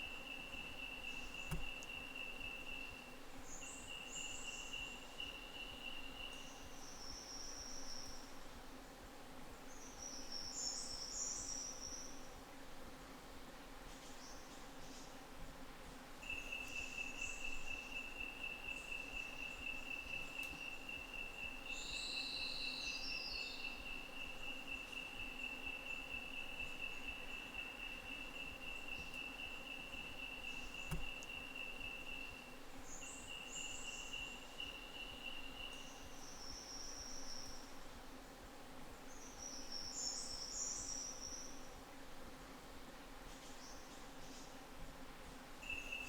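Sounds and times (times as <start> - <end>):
faint insect chirps: 0.0 - 8.5, 16.2 - 38.0, 39.0 - 41.8, 45.6 - 46.0.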